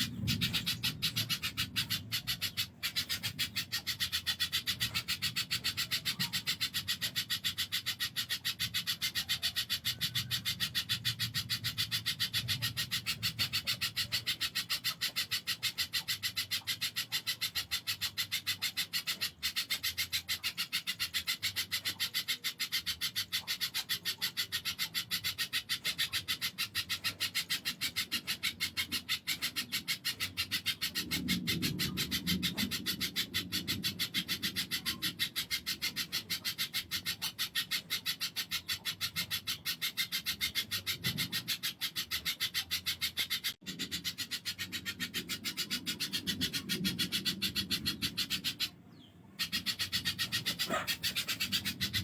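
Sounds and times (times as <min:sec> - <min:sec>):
bird calling in sharp high chips: 0:49.4 - 0:52.0.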